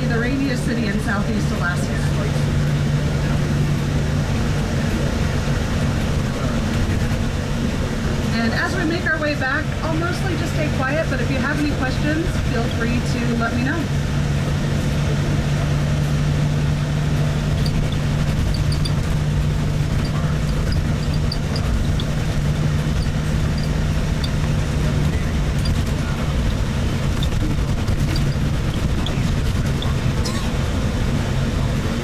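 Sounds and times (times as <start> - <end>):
road rumble: 0.0 - 32.0
vehicle engine hum: 0.0 - 32.0
ticks and rattles: 16.2 - 32.0.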